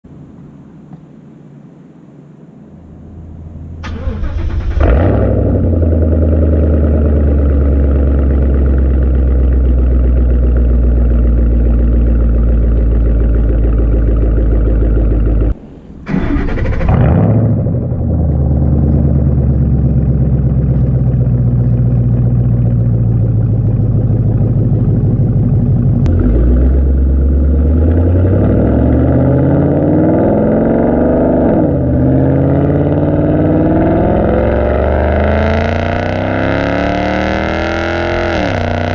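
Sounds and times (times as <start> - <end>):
car engine idling: 1.3 - 31.0
engine starting: 3.8 - 5.5, 16.0 - 17.5
engine revving: 3.8 - 10.9, 12.6 - 20.9, 25.9 - 38.9.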